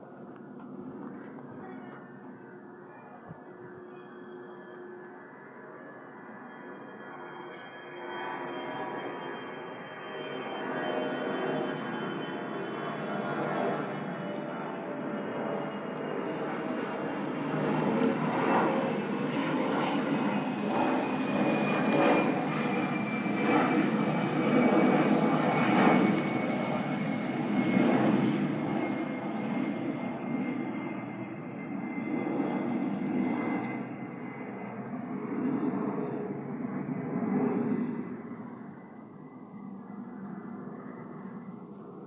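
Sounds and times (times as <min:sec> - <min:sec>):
jet engines spooling down: 0:04.2 - 0:29.9.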